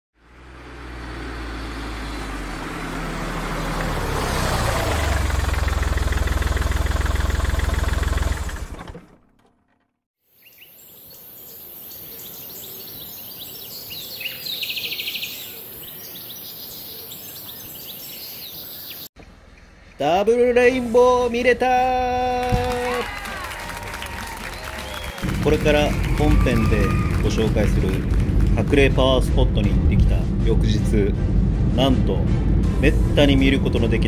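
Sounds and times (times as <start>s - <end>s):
birds chirping: 10.3s - 20.2s, 24.3s - 27.6s
loud low rumbling: 25.0s - 34.0s.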